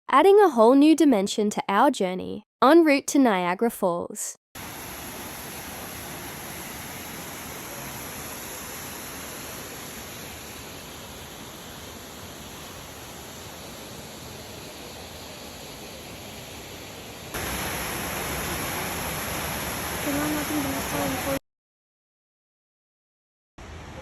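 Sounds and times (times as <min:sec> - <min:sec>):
waterfall roaring: 0:04.6 - 0:21.4.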